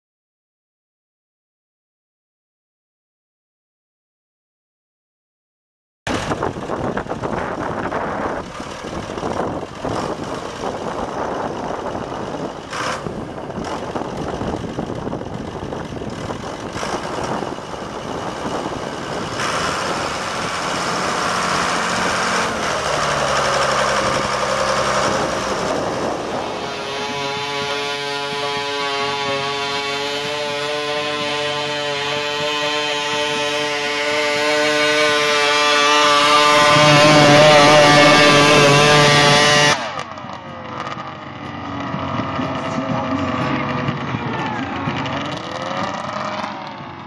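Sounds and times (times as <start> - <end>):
tractor engine running hard: 6.1 - 47.0
steady pitched tone: 20.8 - 32.2.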